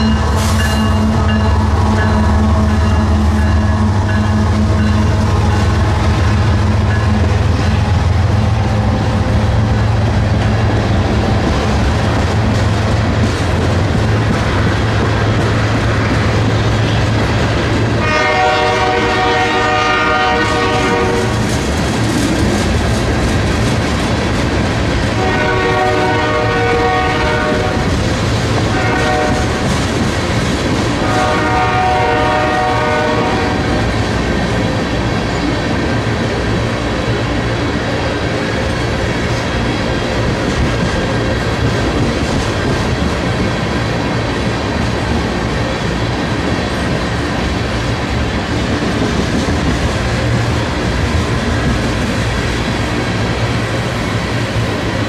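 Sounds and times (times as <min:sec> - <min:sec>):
diesel locomotive rumble: 0:00.0 - 0:55.0
train wheels clattering on rails: 0:00.0 - 0:55.0
train horn: 0:18.0 - 0:21.5, 0:25.1 - 0:28.0, 0:28.6 - 0:29.8, 0:31.0 - 0:33.9.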